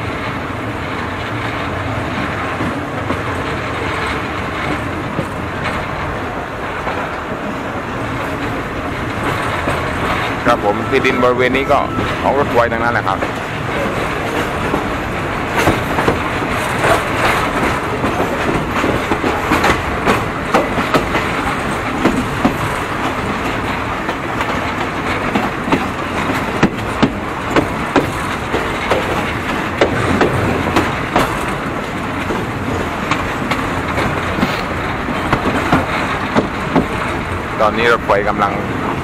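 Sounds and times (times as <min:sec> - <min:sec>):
train rumbling on track: 0:00.0 - 0:39.0
wheels clicking over rail joints: 0:00.0 - 0:39.0.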